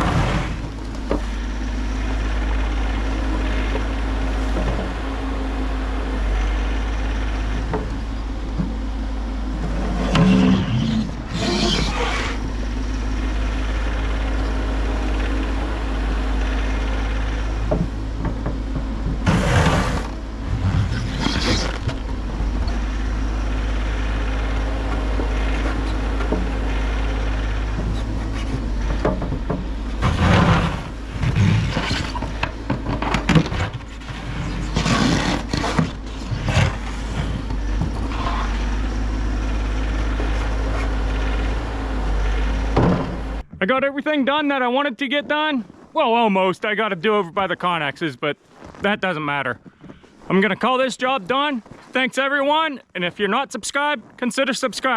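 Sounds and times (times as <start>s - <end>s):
harsh machine noise bursts: 0.0s - 43.4s
diesel excavator engine running: 0.0s - 54.9s.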